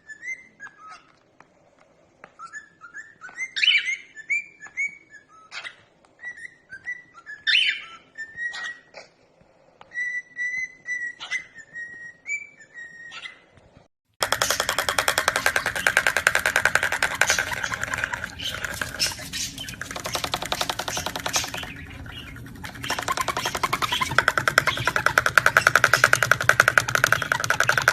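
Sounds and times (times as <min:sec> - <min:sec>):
parrot clicks: 0:14.2 - 0:27.9
parrot whistling: 0:14.2 - 0:27.9.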